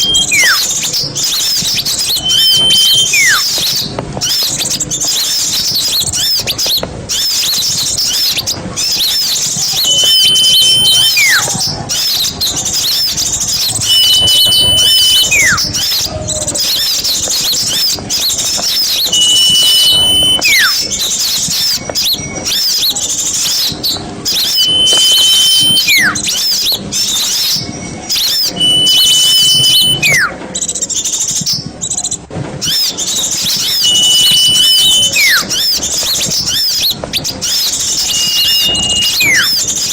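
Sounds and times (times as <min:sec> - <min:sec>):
short falling whistle: 0:00.0 - 0:03.8, 0:09.6 - 0:12.2, 0:13.5 - 0:16.0, 0:18.7 - 0:21.0, 0:24.3 - 0:26.6, 0:28.1 - 0:30.4, 0:32.7 - 0:35.8, 0:37.8 - 0:39.7
long steady whistle: 0:00.0 - 0:04.4, 0:09.0 - 0:16.1, 0:16.8 - 0:23.7, 0:24.3 - 0:30.4, 0:32.7 - 0:39.9
songbirds twittering: 0:00.0 - 0:39.9.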